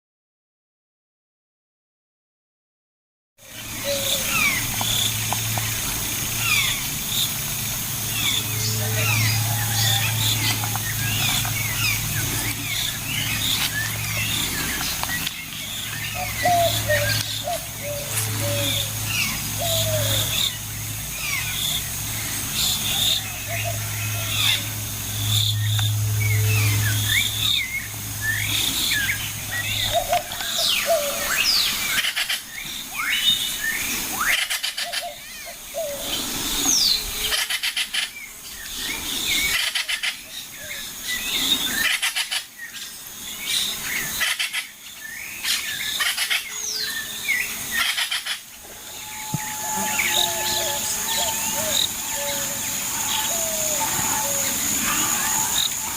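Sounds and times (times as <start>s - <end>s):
steady low hum: 3.4s - 34.2s, 44.8s - 55.9s
birds chirping and whistling: 3.5s - 55.9s
lower-pitched bird call: 8.0s - 42.6s, 45.4s - 55.9s.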